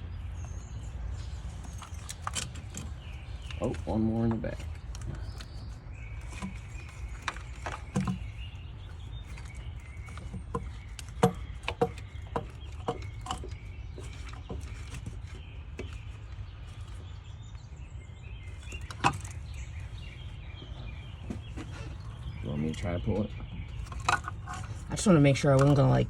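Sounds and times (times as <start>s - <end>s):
hand tools clicking and knocking: 1.6s - 16.2s.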